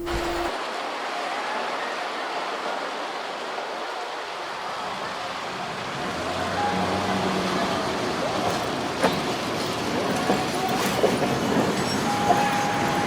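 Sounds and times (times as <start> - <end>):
brief high tone: 0.0 - 0.6
city street traffic: 5.2 - 13.0.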